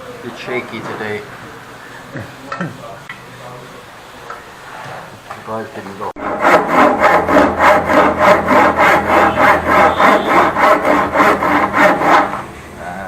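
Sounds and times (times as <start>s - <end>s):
hand saw cutting wood: 6.2s - 12.5s.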